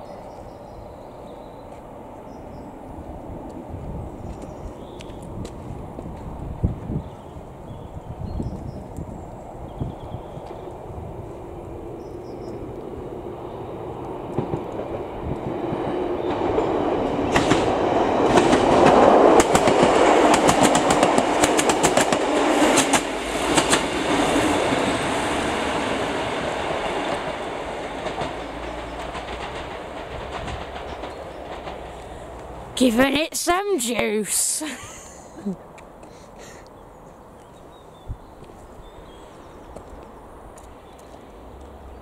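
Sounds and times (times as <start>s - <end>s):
train rumbling past: 0.0s - 42.0s
wheels clattering over rail joints: 14.0s - 25.0s, 26.0s - 32.8s.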